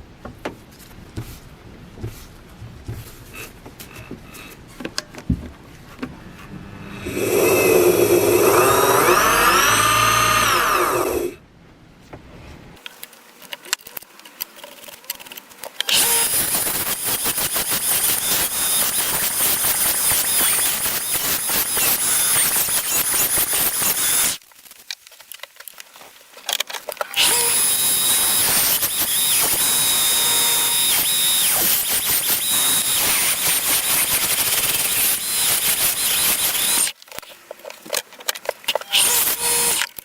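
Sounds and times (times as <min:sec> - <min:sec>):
power tool grinding: 0:05.9 - 0:11.4, 0:15.9 - 0:24.4, 0:27.1 - 0:37.0, 0:38.7 - 0:40.0.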